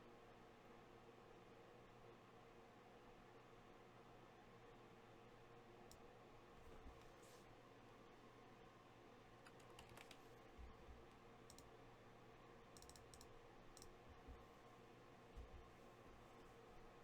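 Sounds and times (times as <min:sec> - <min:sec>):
faint sharp clicks: 0:11.5 - 0:11.7.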